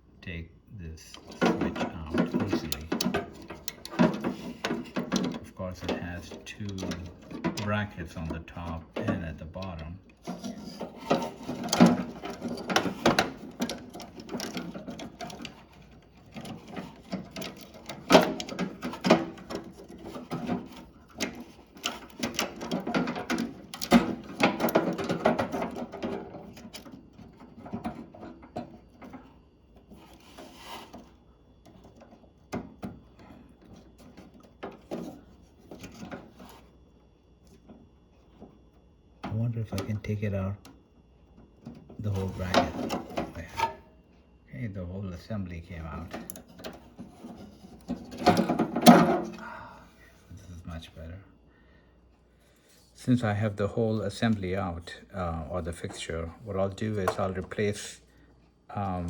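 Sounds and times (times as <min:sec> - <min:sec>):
plastic clicking and scraping: 0:01.1 - 0:36.7.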